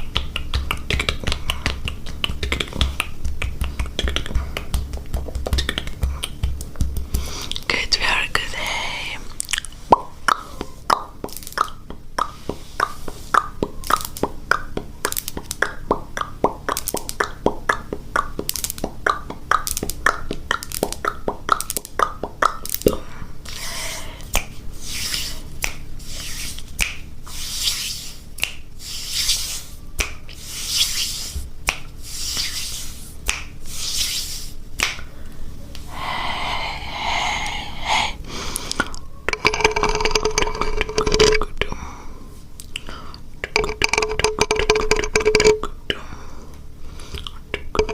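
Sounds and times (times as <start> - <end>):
rapid mouth clicks: 0.0 - 27.1, 28.4 - 30.5, 35.9 - 41.7, 42.6 - 46.0, 47.1 - 47.9
wet mouth smacks: 9.4 - 14.3, 42.6 - 44.3.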